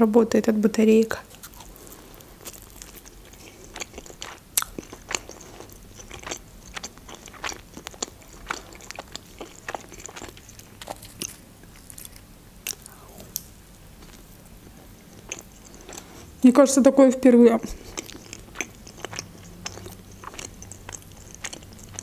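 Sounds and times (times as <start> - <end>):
pastry crunching: 1.2 - 16.4, 17.6 - 22.0
wet mouth clicks: 17.7 - 22.0.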